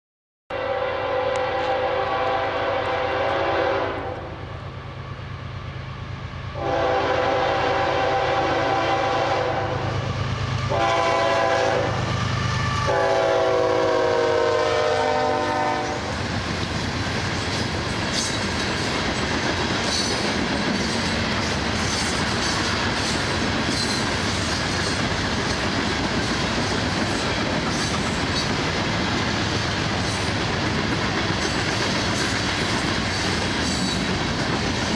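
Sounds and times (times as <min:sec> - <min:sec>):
locomotive air horn: 0:00.5 - 0:04.4, 0:06.0 - 0:16.1
wheels clacking over rail joints: 0:16.1 - 0:34.9.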